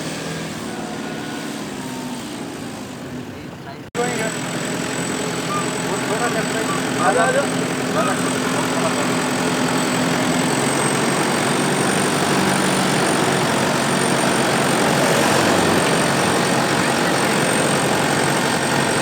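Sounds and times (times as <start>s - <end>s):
diesel engine under load: 0.0s - 19.0s.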